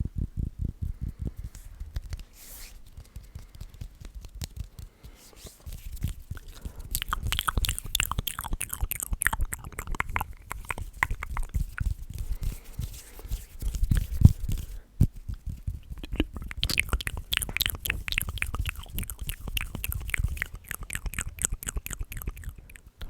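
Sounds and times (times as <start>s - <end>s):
sharp clicking mouth sounds: 1.0s - 23.0s
rhythmic rubbing: 5.6s - 22.9s.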